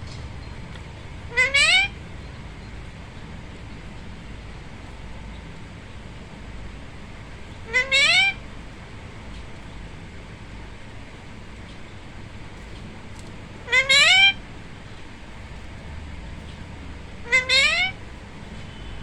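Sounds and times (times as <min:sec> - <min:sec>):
parrot calling: 0:01.2 - 0:02.1, 0:07.5 - 0:08.5, 0:13.5 - 0:14.6, 0:17.1 - 0:18.2.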